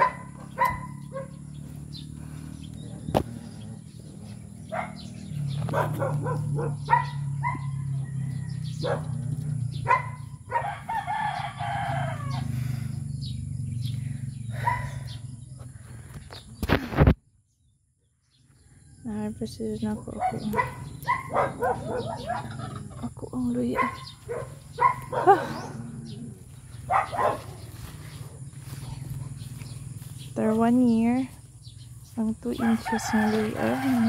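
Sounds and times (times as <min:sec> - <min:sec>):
bird calls: 0:00.0 - 0:34.0
steady low drone: 0:00.2 - 0:16.7.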